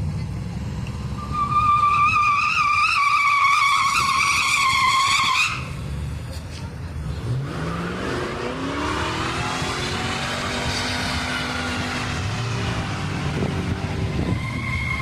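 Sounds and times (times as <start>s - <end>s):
car engine revving high: 7.1s - 15.0s.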